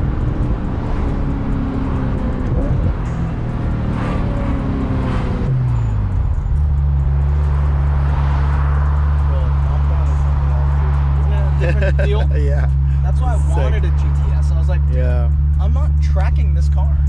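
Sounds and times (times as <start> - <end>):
car engine droning: 0.0 - 17.0.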